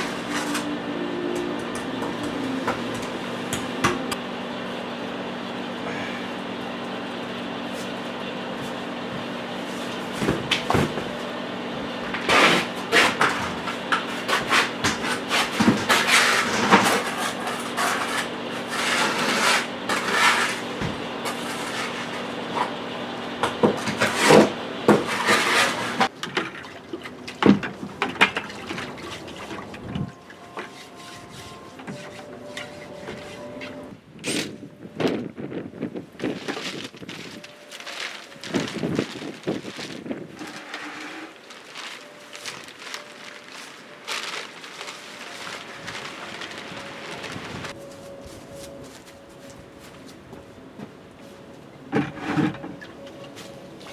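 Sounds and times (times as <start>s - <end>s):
scraping and rubbing on brick: 0.0s - 0.8s, 12.2s - 22.8s, 23.8s - 26.1s
steady mechanical hum: 0.0s - 53.9s.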